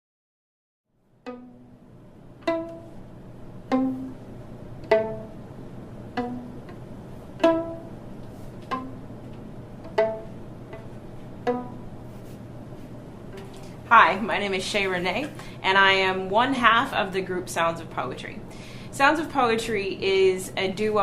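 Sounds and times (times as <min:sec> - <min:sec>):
faint low hum: 0:01.0 - 0:21.0
violin plucked notes: 0:01.1 - 0:12.4.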